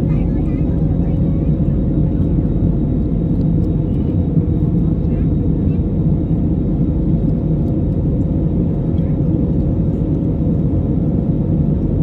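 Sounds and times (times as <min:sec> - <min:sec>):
jet engines at takeoff power: 0:00.0 - 0:12.0.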